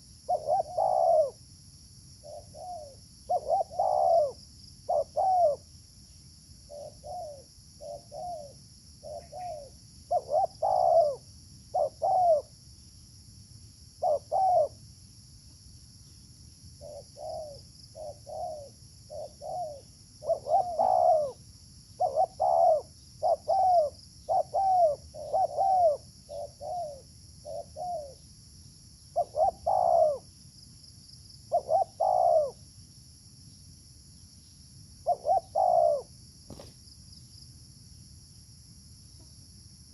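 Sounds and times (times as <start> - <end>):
doves cooing: 0.3 - 1.4, 2.2 - 5.6, 6.7 - 12.5, 14.0 - 14.8, 16.8 - 21.4, 22.0 - 28.2, 29.2 - 30.2, 31.5 - 32.6, 35.1 - 36.6.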